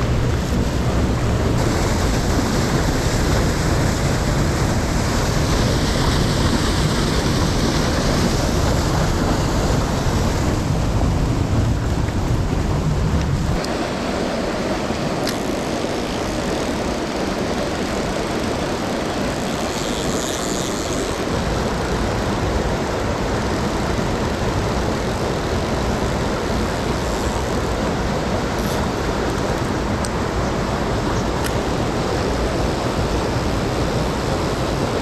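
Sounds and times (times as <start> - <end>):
stream rushing over rocks: 0.0 - 19.8.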